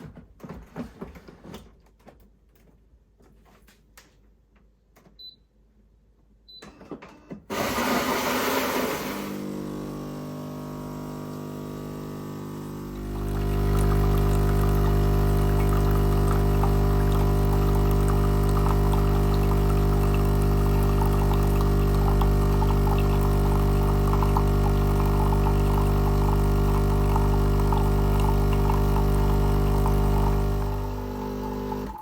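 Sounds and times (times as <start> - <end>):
espresso machine pump humming: 7.5 - 32.0.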